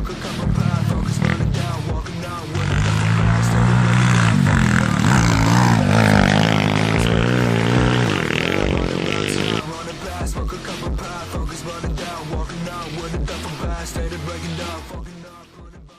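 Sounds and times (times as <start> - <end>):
pit bike engine revving: 0.3 - 9.7.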